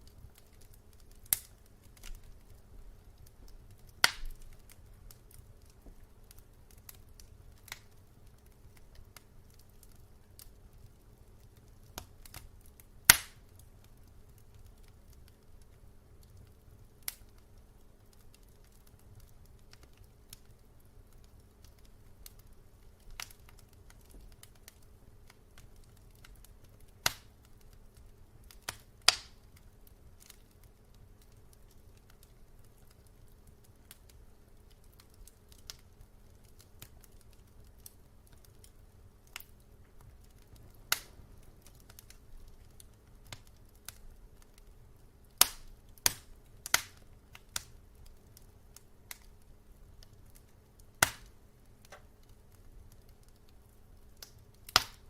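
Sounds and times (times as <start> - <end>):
wood fire crackling and popping: 0.0 - 55.0
low steady rumble: 35.9 - 54.2.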